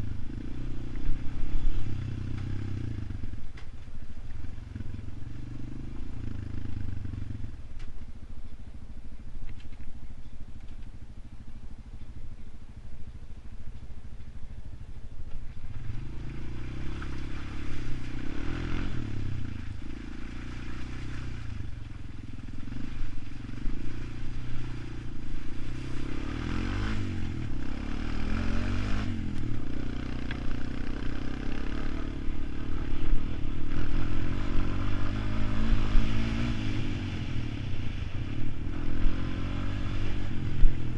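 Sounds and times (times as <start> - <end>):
atv engine revving: 0.0 - 3.7, 4.4 - 7.6, 15.6 - 40.9.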